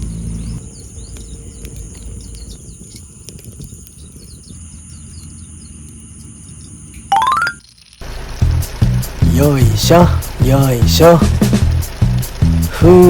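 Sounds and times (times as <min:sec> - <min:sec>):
low rumbling background: 0:08.0 - 0:13.0.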